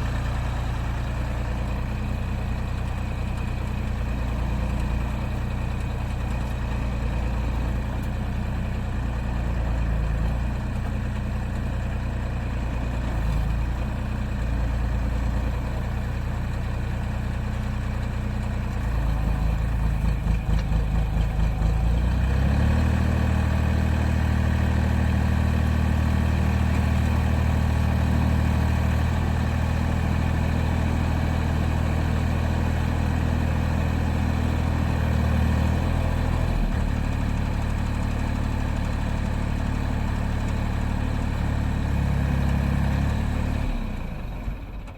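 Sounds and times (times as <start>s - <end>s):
excavator engine running: 0.0s - 44.9s.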